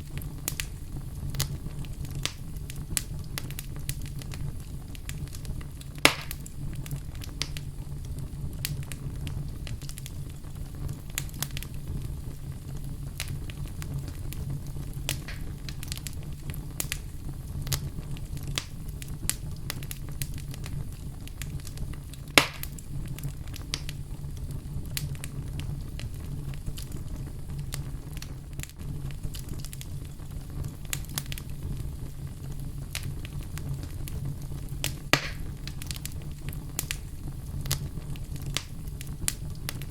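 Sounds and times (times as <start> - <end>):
fire crackling in a fireplace: 0.0 - 39.9
sharp pops of fire: 0.0 - 39.9.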